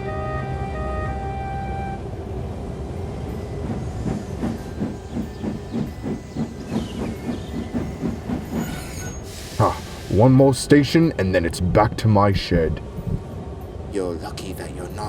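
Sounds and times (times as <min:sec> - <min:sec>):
background music: 0:00.0 - 0:02.2
steam locomotive chuffing: 0:03.6 - 0:11.0.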